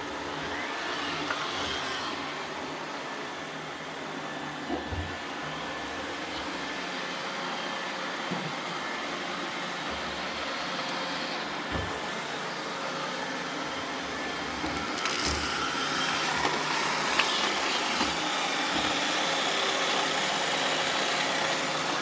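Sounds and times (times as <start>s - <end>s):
robot vacuums whirring: 0.0s - 22.0s.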